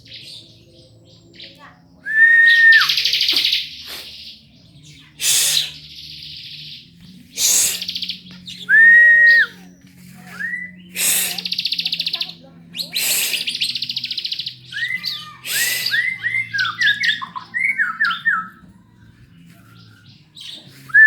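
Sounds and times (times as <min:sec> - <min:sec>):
lovebird whistled notes: 0:02.1 - 0:03.5
lovebird chattering trills: 0:11.0 - 0:16.0.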